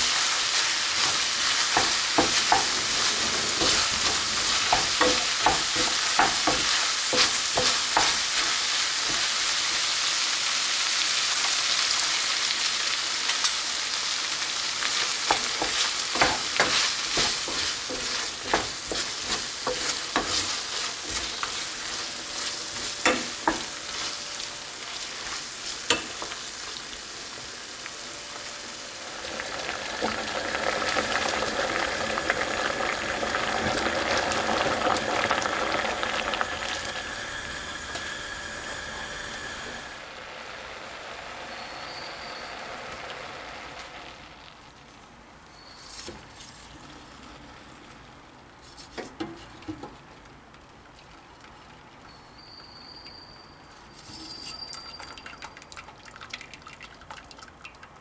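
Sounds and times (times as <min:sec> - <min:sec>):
food sizzling in a hot pan: 0:00.0 - 0:44.8.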